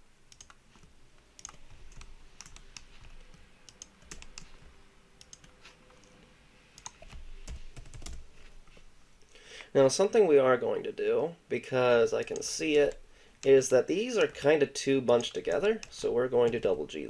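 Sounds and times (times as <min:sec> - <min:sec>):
computer keyboard and mouse clicks: 0:00.3 - 0:06.2, 0:06.8 - 0:08.2.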